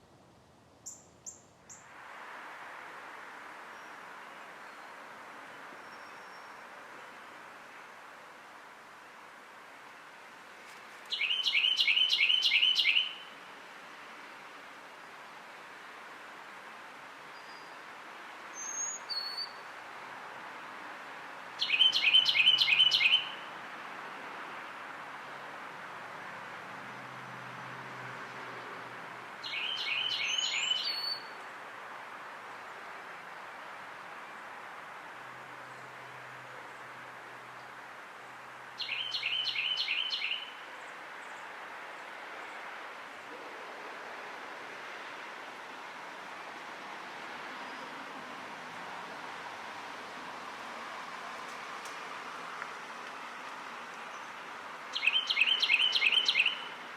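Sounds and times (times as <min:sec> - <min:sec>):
steady background hiss: 0:00.0 - 0:56.9
songbird singing: 0:00.8 - 0:01.9, 0:03.7 - 0:08.0, 0:10.8 - 0:13.5, 0:17.2 - 0:19.7, 0:21.5 - 0:23.6, 0:29.4 - 0:31.6, 0:35.4 - 0:43.6, 0:54.0 - 0:56.9.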